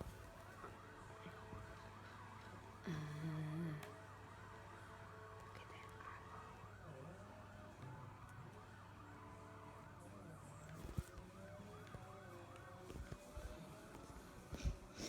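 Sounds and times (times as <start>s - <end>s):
faint yelping siren: 0.3s - 15.0s.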